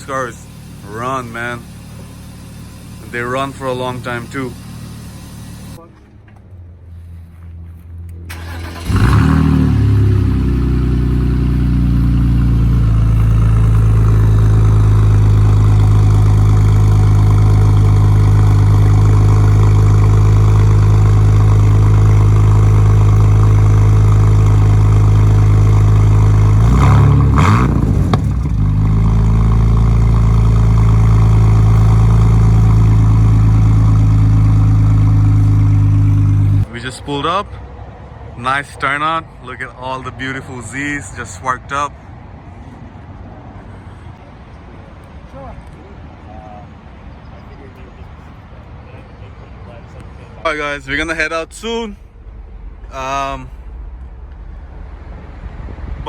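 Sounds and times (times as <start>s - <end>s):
car engine running: 0.0s - 5.8s, 8.3s - 36.7s.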